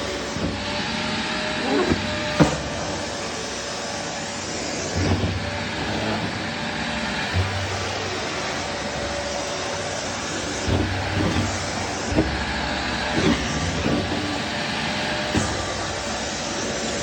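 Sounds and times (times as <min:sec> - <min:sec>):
vacuum cleaner running: 0:00.0 - 0:17.0
low bumps and knocks: 0:10.5 - 0:14.4.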